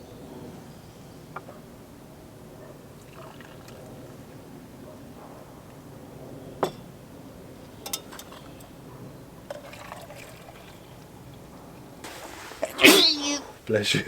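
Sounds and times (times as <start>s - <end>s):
liquid pouring: 3.0s - 4.0s, 9.5s - 11.4s, 12.0s - 13.4s.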